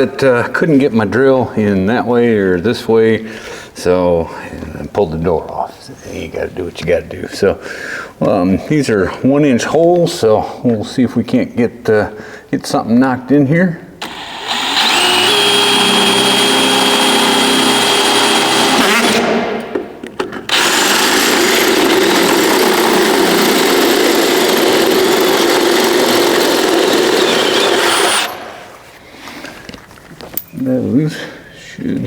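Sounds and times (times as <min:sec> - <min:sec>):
electric drill whining through steel: 0:14.0 - 0:19.5, 0:20.5 - 0:28.7.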